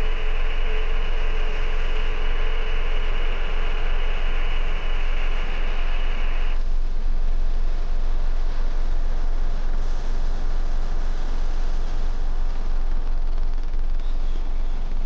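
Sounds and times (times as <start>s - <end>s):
loud hiss: 0.0s - 6.6s
deep low hum: 0.0s - 15.0s.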